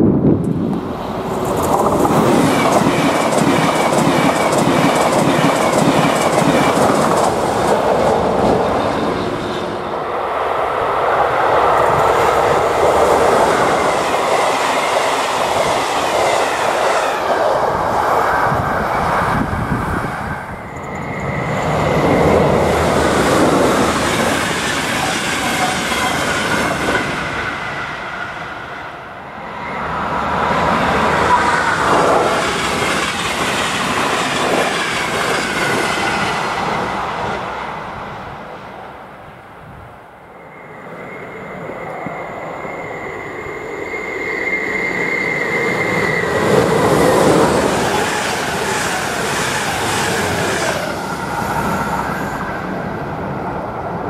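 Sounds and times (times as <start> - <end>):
train passing: 0.0 - 54.0
wheels clacking over rail joints: 1.2 - 9.2.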